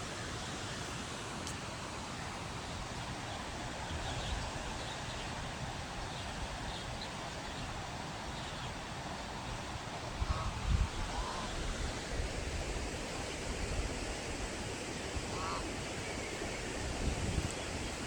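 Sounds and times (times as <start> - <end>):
floodwater rushing: 8.8 - 18.0.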